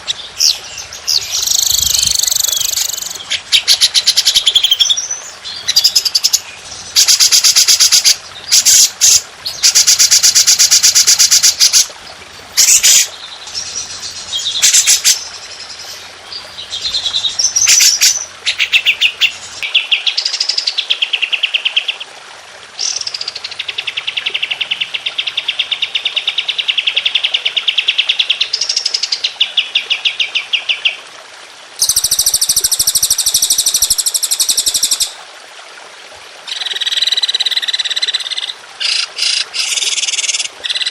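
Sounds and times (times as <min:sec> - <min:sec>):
songbirds trilling: 0:00.0 - 0:20.0.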